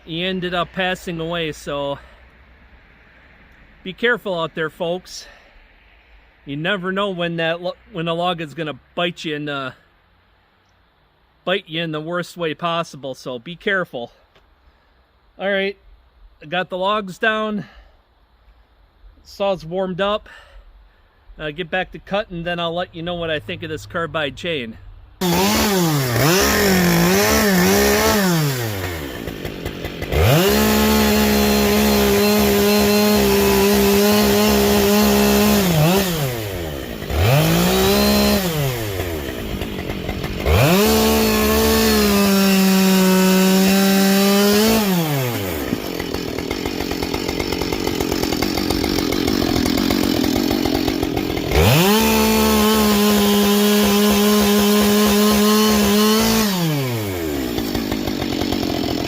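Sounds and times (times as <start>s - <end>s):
chainsaw revving through logs: 25.2s - 59.0s.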